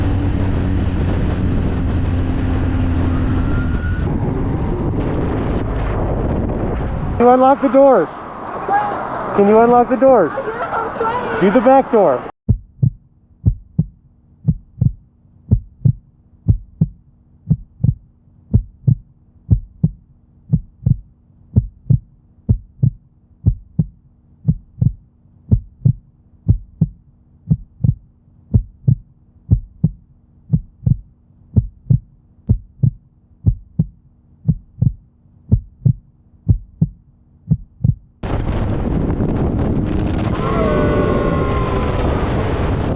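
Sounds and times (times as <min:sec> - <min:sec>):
heartbeat double thumps: 0:12.5 - 0:38.2.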